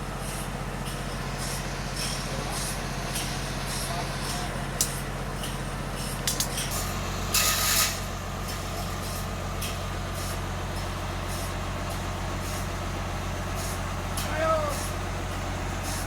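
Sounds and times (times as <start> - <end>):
sawmill engine humming: 0.0 - 16.0
short loud hiss: 7.3 - 8.1.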